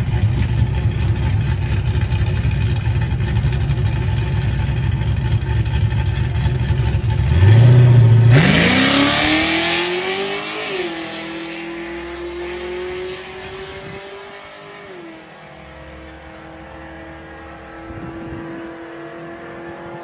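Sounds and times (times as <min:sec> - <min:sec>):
car engine at full throttle: 0:00.0 - 0:20.0.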